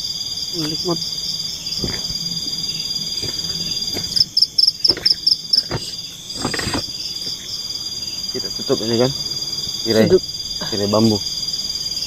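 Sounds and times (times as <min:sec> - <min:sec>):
insect chirping in quick pulses: 0:00.0 - 0:12.0
insect chorus: 0:00.0 - 0:12.0
faint knocks: 0:01.8 - 0:02.2.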